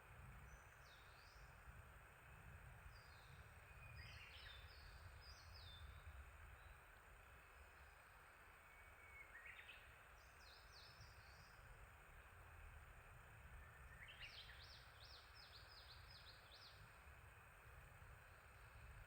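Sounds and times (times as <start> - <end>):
background hiss: 0.0 - 19.0
songbird singing: 0.3 - 19.0.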